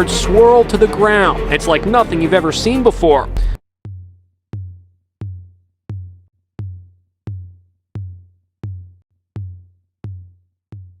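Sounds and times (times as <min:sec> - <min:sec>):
drum machine kick drum: 0:03.3 - 0:11.0.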